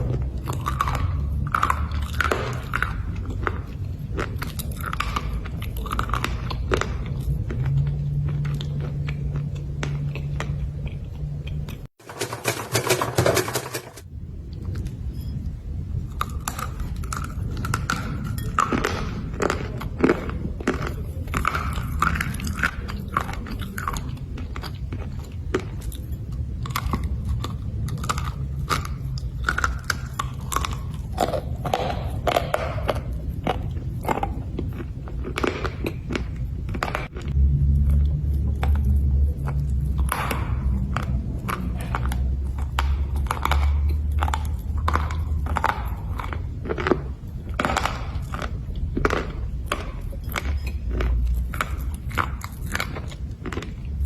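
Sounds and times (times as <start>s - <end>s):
slate crunching while chewed: 0.0s - 14.9s, 15.9s - 54.0s
low rumble: 14.0s - 54.0s.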